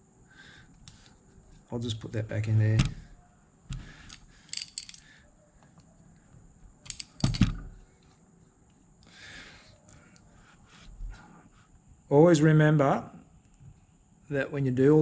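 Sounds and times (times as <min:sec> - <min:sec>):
small metallic clicks and scrapes: 0:04.0 - 0:05.9, 0:06.8 - 0:07.5.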